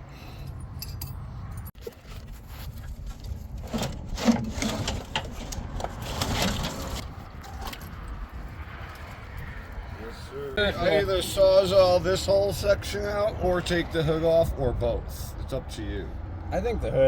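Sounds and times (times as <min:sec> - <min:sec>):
metal chain clinking and rattling: 0:00.6 - 0:01.8.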